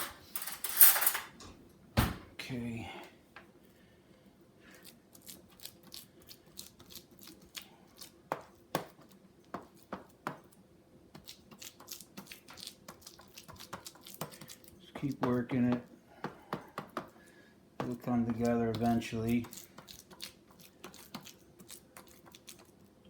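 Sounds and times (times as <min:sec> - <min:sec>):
knife tapping: 0:15.1 - 0:17.1, 0:17.8 - 0:19.6.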